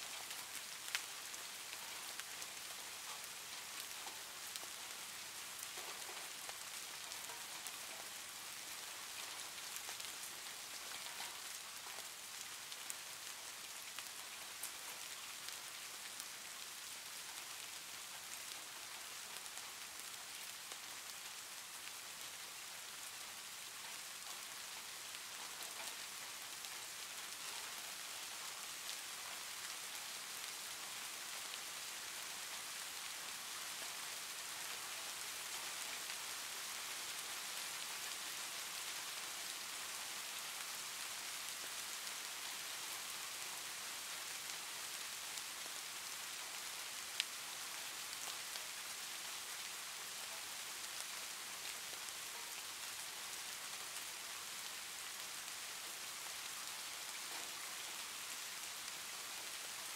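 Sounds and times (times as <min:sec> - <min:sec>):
steady rain hiss: 0:00.0 - 0:59.9
raindrop ticks: 0:09.1 - 0:13.0, 0:23.8 - 0:31.6.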